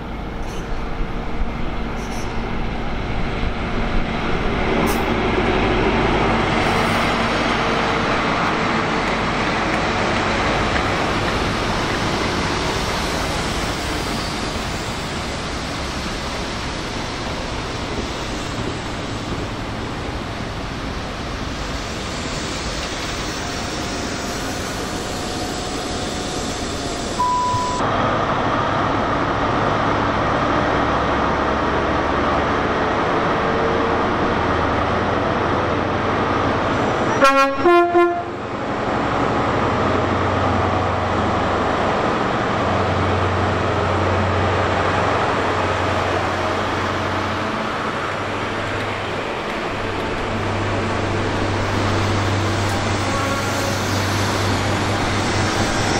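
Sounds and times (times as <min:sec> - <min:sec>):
train running: 0:00.0 - 0:55.9
two-note train horn: 0:37.1 - 0:38.4, 0:53.0 - 0:53.9.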